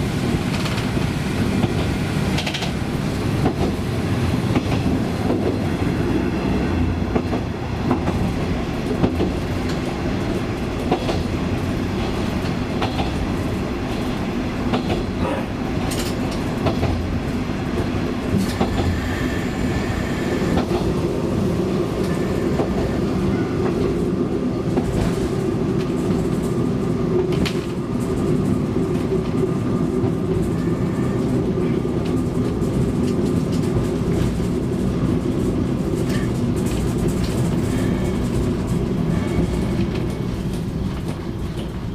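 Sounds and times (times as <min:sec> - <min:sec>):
train wheels clicking over rail joints: 0:00.2 - 0:05.8, 0:07.0 - 0:19.6, 0:20.3 - 0:21.0.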